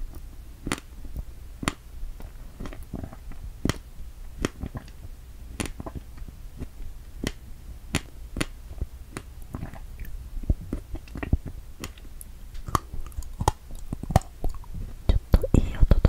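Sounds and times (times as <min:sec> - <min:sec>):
chewing with mouth clicks: 0:09.2 - 0:14.8.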